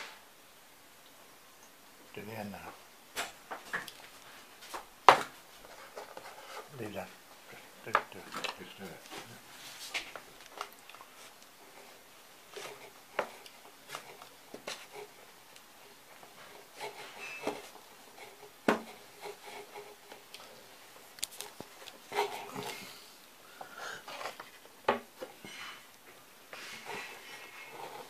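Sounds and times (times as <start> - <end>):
small objects clicking and tapping: 21.1 - 22.0.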